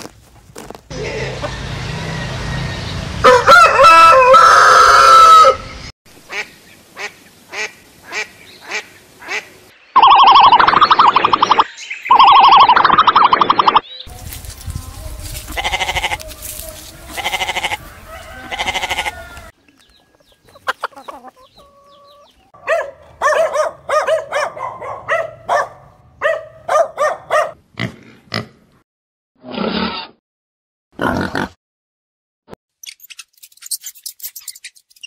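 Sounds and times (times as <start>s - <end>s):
farm animals bleating: 14.3s - 19.5s.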